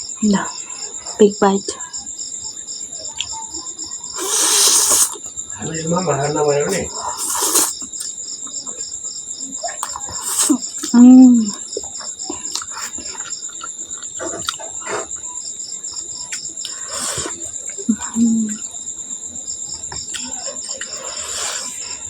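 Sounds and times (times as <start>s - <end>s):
insects chirping: 0.0s - 22.0s
person chewing: 4.1s - 5.2s, 6.8s - 8.1s, 9.8s - 11.0s, 12.4s - 15.3s, 16.6s - 17.8s, 20.1s - 21.9s
person saying mmm: 4.2s - 5.2s, 7.2s - 7.7s.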